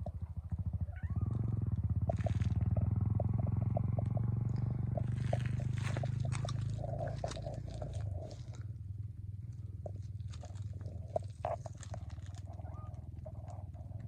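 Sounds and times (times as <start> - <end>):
kitten purring: 0.0 - 14.0
kitten chewing food: 3.8 - 8.6, 9.8 - 14.0.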